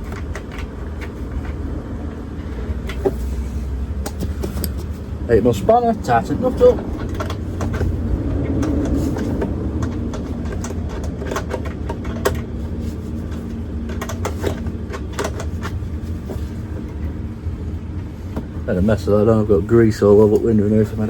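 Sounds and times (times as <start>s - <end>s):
steady low rumble: 0.0s - 21.0s
spanner clicking on a nut: 6.6s - 12.7s.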